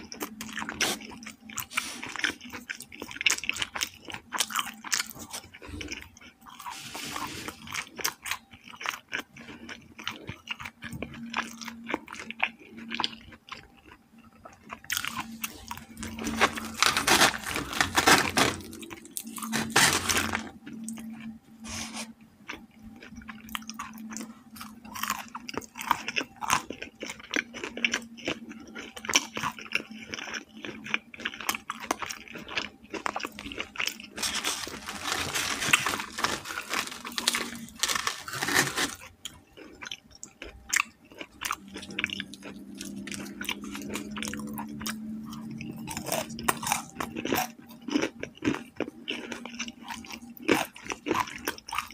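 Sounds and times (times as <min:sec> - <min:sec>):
chewing and crunching fried chicken: 0:00.0 - 0:51.9
breaded chicken pulled apart crackling: 0:16.3 - 0:18.6.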